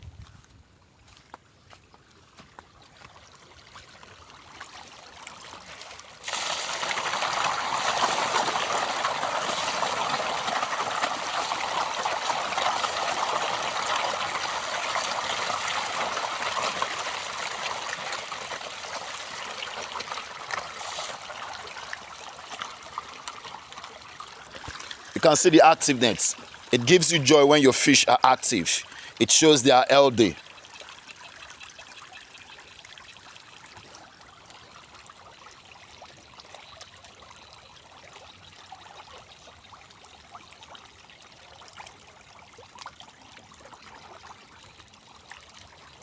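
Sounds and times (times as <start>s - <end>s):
fish thrashing in water: 3.4s - 25.2s.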